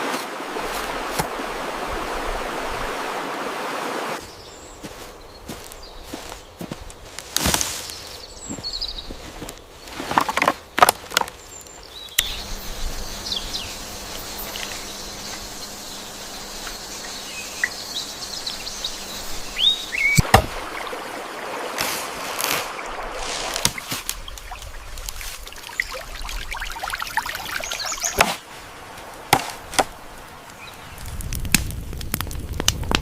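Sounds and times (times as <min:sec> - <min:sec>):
outdoor hiss: 0:00.0 - 0:08.4, 0:11.5 - 0:31.8
knocks and rustling of handling: 0:06.7 - 0:11.4.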